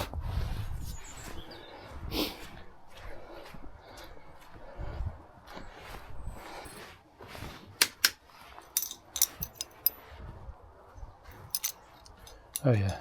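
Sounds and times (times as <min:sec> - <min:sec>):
brush sweeping on a roof: 0:06.5 - 0:08.7
sharp clicks and knocks: 0:07.8 - 0:08.2.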